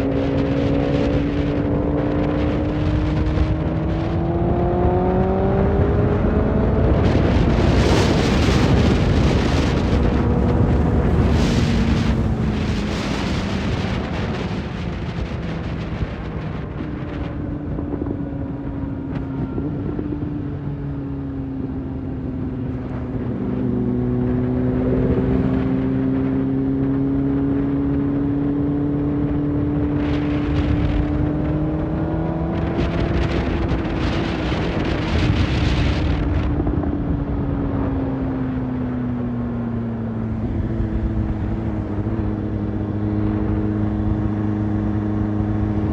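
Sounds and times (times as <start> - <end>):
wind rushing: 0.0 - 20.2
vehicle engine cruising: 0.0 - 45.9.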